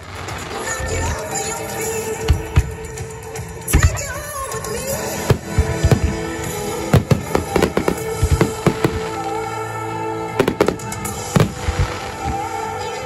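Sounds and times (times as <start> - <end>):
music: 0.0 - 13.0
firework shells bursting: 5.2 - 9.4.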